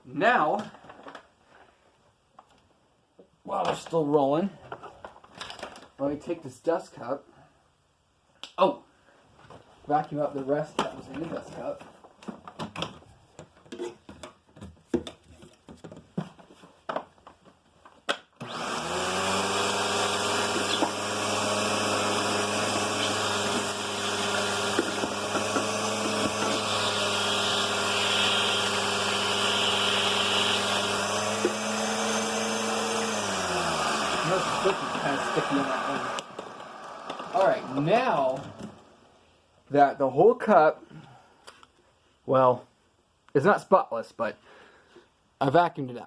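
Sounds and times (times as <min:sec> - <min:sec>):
vacuum cleaner motor running: 0:18.4 - 0:39.0.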